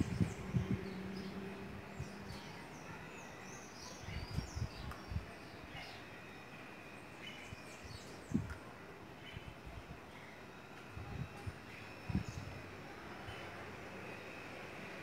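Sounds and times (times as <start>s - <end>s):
small birds chirping: 0.0s - 10.4s
low outdoor background: 0.0s - 15.0s.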